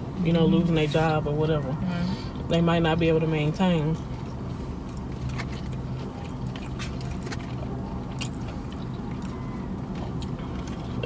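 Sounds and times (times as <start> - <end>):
chewing food: 4.1 - 11.0.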